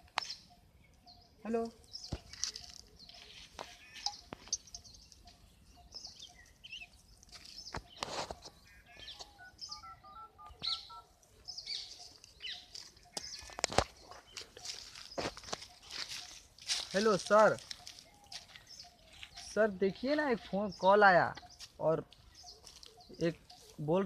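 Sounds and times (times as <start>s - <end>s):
small birds chirping: 0.0s - 24.0s
phone keypad beeps: 7.9s - 11.1s.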